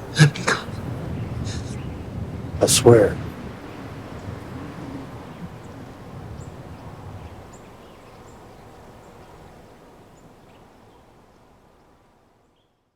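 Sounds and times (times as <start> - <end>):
steady rushing haze: 0.0 - 8.7.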